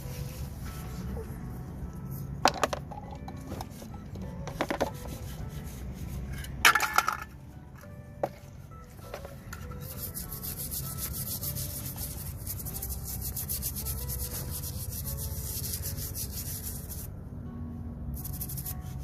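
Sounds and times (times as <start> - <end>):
rapid rubbing strokes on metal: 9.8 - 17.1, 18.2 - 19.0.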